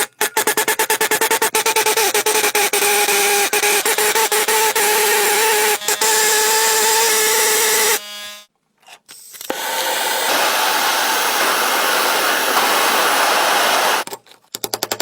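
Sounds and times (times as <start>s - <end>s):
power tool grinding metal: 1.9s - 8.5s, 9.4s - 14.1s.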